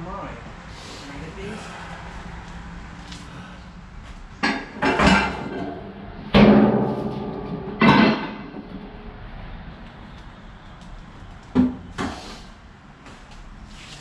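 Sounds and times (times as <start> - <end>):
metal scrap clanging: 4.4 - 9.2.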